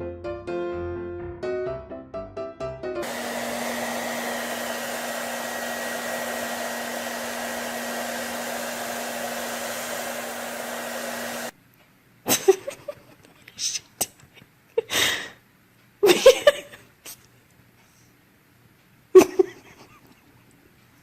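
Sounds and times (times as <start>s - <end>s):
electric motor blowing air: 3.0s - 11.5s.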